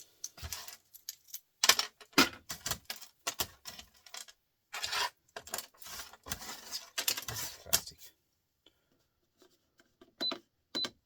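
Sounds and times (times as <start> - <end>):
scrap wire clicking and clattering: 0.0 - 7.9.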